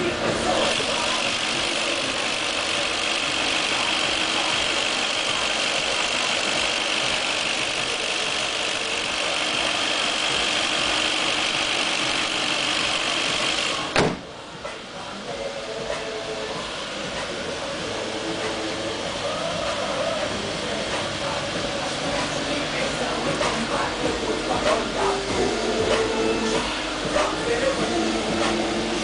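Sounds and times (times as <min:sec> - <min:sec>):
car engine idling: 0:00.0 - 0:29.0
high whine: 0:00.0 - 0:29.0
car hood shutting with a bang: 0:13.9 - 0:14.3.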